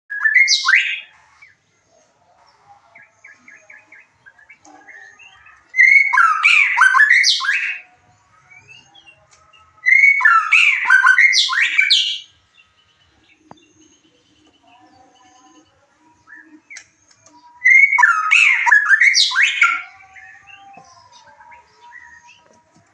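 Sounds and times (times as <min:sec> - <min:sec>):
bird whistled song phrases: 0:00.1 - 0:01.1, 0:03.3 - 0:07.8, 0:09.8 - 0:12.3, 0:17.6 - 0:22.5
soft bird chirps and chatter: 0:00.1 - 0:22.9.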